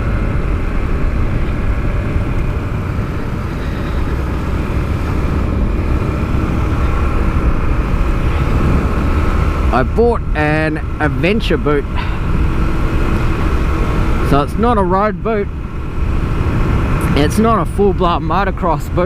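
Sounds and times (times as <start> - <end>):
motorcycle engine running: 0.0 - 18.8
heavy low rumble: 0.0 - 19.0.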